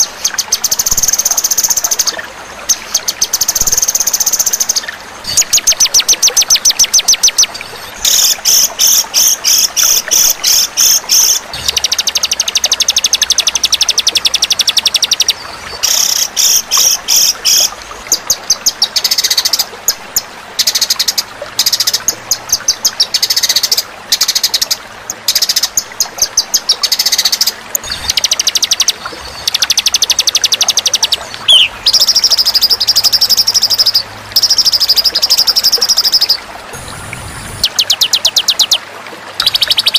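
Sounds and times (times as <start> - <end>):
songbird trills and rattles: 27.9 - 36.3.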